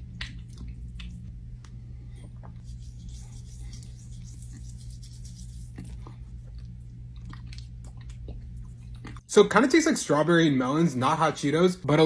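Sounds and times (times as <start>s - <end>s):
steady low hum: 0.0s - 12.0s
gritty scratching on lips: 2.5s - 6.6s.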